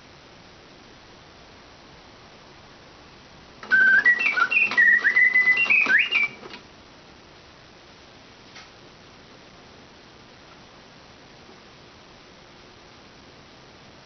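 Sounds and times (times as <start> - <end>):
faint hiss: 0.0 - 14.0
mechanical bird whistling: 3.6 - 6.5.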